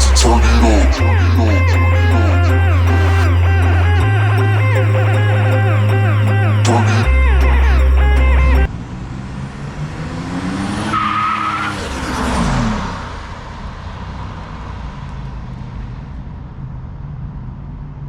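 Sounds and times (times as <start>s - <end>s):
high-pitched squeal: 0.0s - 8.7s
car engine accelerating hard: 0.0s - 17.7s
road noise: 0.0s - 18.0s.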